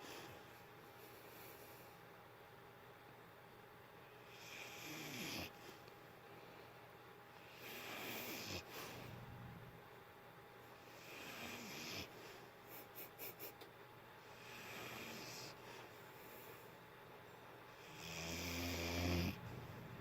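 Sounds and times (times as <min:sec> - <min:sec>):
dog snoring faintly: 0:04.2 - 0:05.8, 0:07.4 - 0:09.8, 0:10.8 - 0:12.3, 0:14.2 - 0:16.6, 0:17.7 - 0:20.0.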